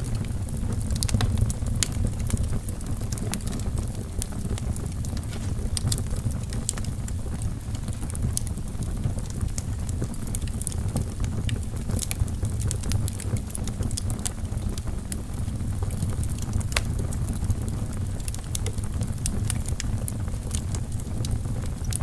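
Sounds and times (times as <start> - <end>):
logs crackling in fireplace: 0.0 - 22.0.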